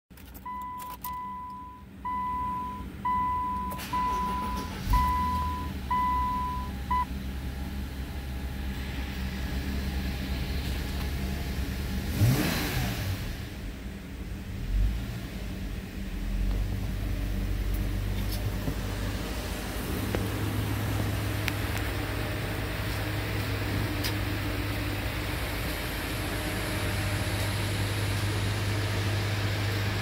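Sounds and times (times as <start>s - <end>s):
car engine starting and idling: 0.1s - 30.0s
dashboard warning chime beeping: 0.3s - 7.1s.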